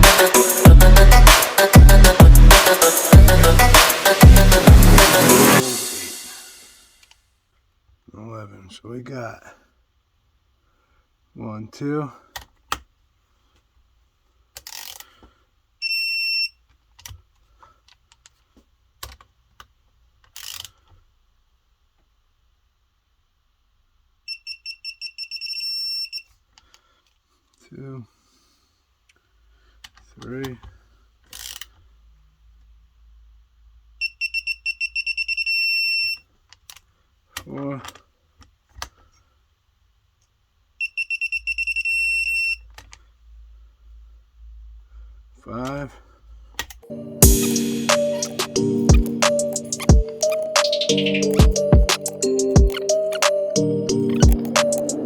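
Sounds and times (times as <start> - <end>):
torque wrench beeping: 24.3 - 26.2, 34.0 - 36.2, 40.8 - 42.6, 47.2 - 55.0.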